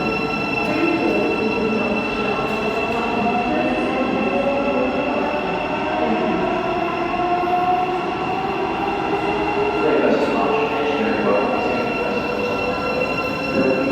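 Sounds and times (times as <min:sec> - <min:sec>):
electric train whine: 0:00.0 - 0:13.9.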